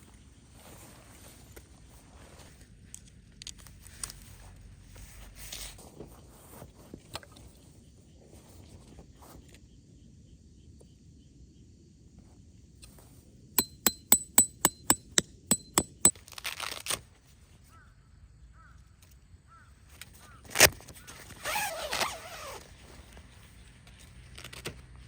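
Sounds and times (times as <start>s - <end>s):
ringing metal-on-metal strikes: 13.6s - 16.1s.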